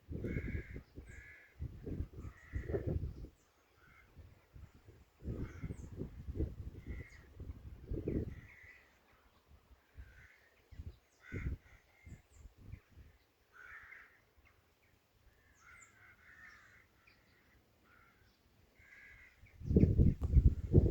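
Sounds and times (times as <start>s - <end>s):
distant birds calling: 0.1s - 20.9s.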